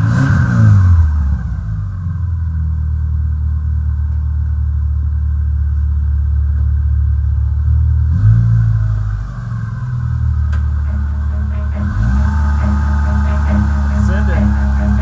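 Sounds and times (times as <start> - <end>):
engine loud steady drone: 10.5 - 15.0.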